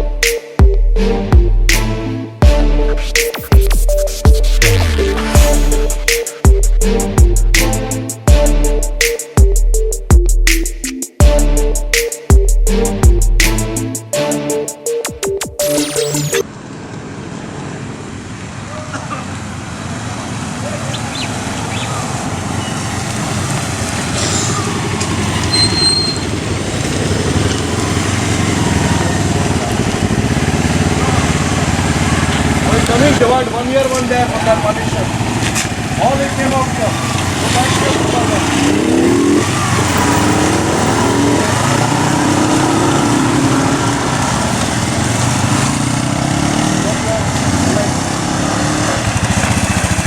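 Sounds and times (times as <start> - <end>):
motorcycle engines running: 16.4 - 50.0
high-pitched squeal: 24.2 - 26.6, 36.6 - 44.5.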